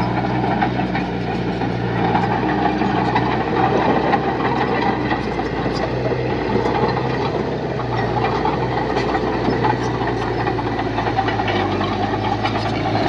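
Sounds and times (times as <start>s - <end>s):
diesel engine running: 0.0s - 13.0s
light clanks and rattles: 0.0s - 13.0s.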